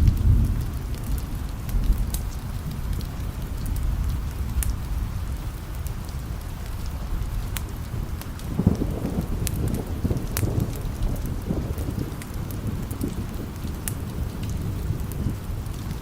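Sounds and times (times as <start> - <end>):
rolling thunder: 0.0 - 16.0
steady rain: 0.0 - 16.0.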